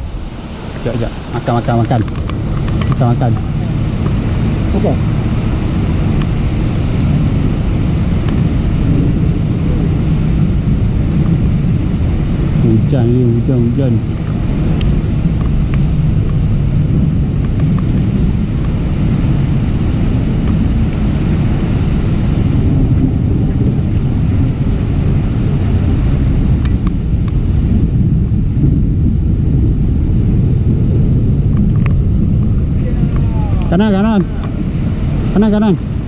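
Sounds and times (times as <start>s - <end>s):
rain falling: 0.0s - 36.0s
wind buffeting microphone: 0.0s - 36.0s.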